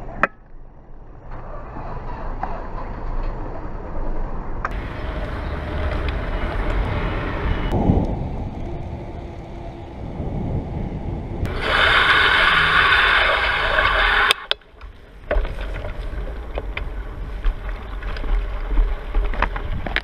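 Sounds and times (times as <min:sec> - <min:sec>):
road and tyre noise: 0:00.0 - 0:20.0
wind buffeting microphone: 0:04.7 - 0:13.6.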